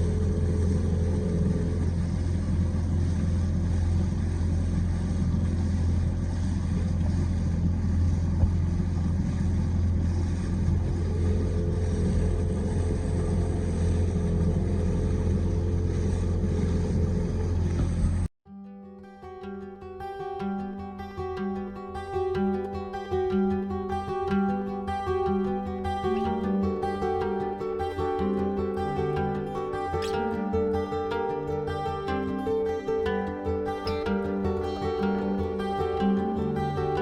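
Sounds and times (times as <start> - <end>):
boat engine running: 0.0 - 18.3, 19.7 - 37.0
acoustic guitar music: 18.5 - 37.0.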